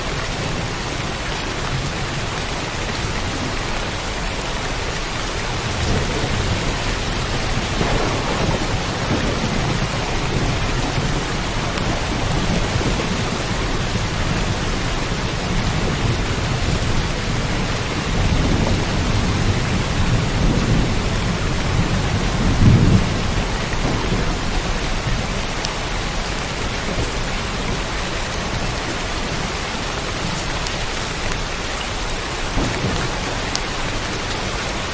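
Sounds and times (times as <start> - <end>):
steady rain falling: 0.0 - 34.9
rolling thunder: 5.2 - 30.4, 32.4 - 34.9.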